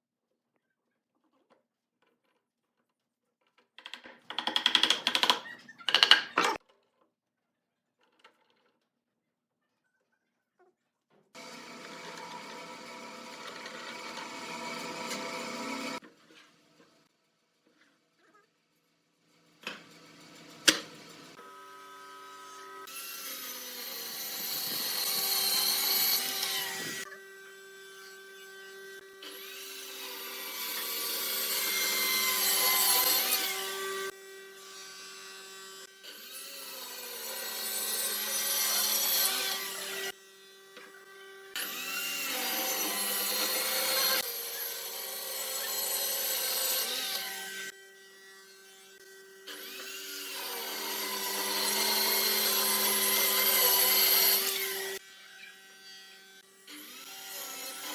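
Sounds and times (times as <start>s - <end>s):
power tool working wood: 11.4s - 16.0s, 19.7s - 57.9s.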